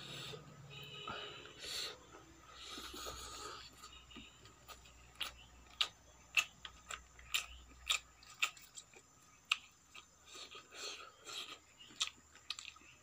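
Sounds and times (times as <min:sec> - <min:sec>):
wet mouth clicks chewing: 0:04.7 - 0:13.0.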